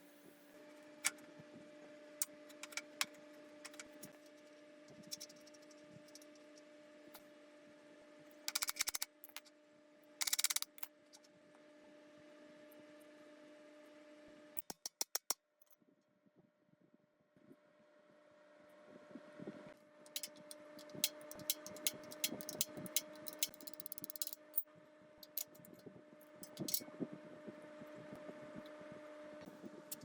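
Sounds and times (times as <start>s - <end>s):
steady low hum: 18.0s - 30.0s.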